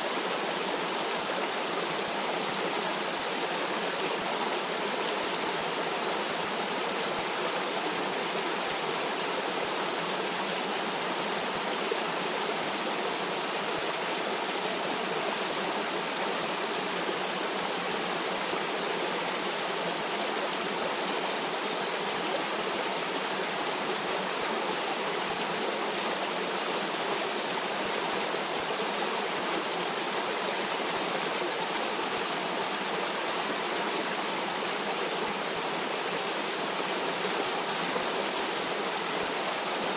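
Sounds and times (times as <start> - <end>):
stream water running over rocks: 0.0 - 39.9.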